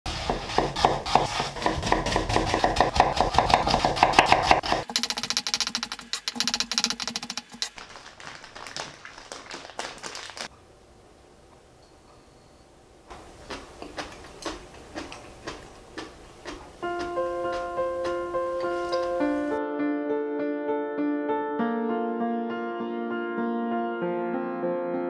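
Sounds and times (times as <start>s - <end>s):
knife chopping on wooden board: 0.1s - 7.6s, 16.0s - 19.1s.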